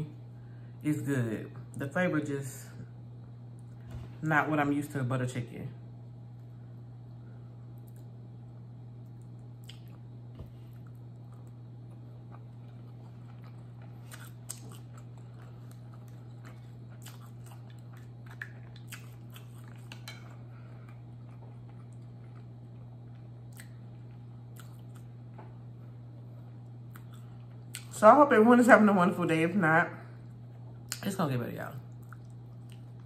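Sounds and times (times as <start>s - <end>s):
steady low hum: 0.0s - 33.0s
chewing food: 9.1s - 10.1s, 10.7s - 25.4s, 26.6s - 27.9s, 31.9s - 33.0s.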